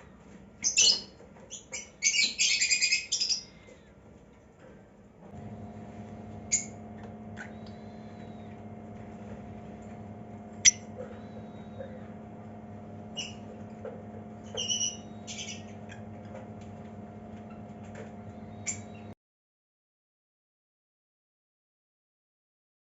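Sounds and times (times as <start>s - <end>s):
low electrical hum: 0.0s - 19.2s
lovebirds chirping and squeaking: 0.6s - 3.9s, 6.4s - 16.5s, 17.3s - 19.1s.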